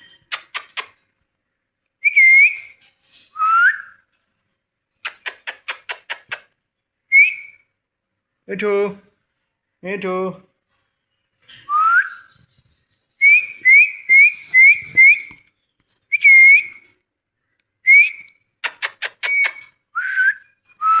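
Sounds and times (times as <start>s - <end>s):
parrot sharp clicks: 5.0s - 6.5s, 18.6s - 19.7s
parrot whistling: 19.1s - 21.0s.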